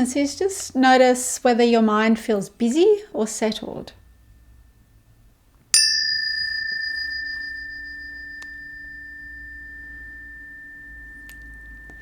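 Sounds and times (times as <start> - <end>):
faint low hum: 0.0 - 12.0
tuning fork clang and ring: 5.7 - 12.0.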